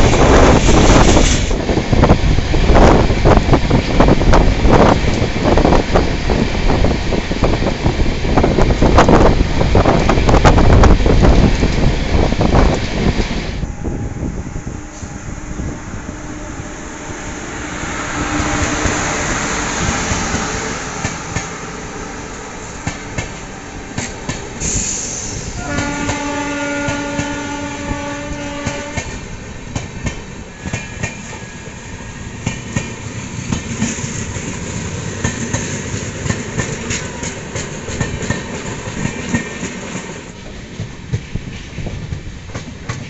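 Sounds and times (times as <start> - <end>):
train horn: 13.6 - 29.2.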